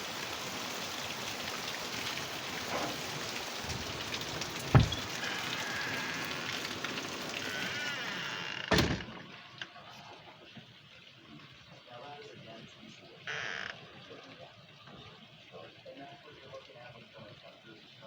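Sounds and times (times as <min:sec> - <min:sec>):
heavy rain falling: 0:00.0 - 0:08.7
heavy thump: 0:03.7 - 0:05.1.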